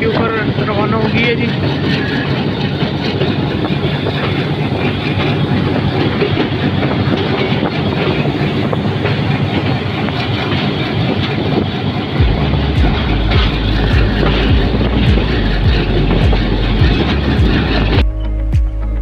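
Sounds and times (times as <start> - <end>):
wheels clattering over track: 0.0 - 18.0
deep buffeting rumble: 0.0 - 19.0
train rumble: 0.0 - 19.0.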